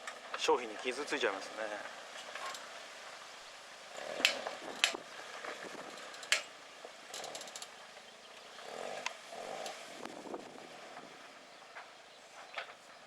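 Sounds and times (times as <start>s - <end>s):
branches snapping against vehicle: 4.1s - 7.7s.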